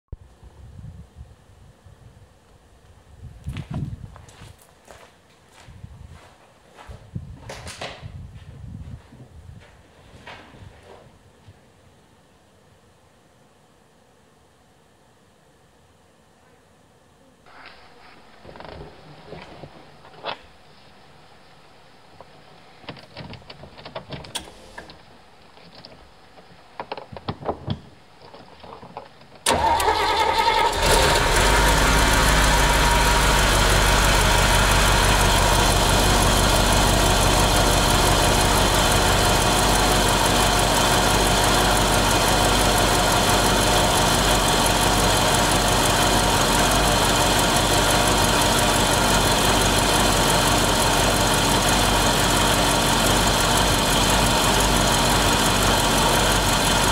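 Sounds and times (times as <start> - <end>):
car engine starting and idling: 29.4 - 56.9.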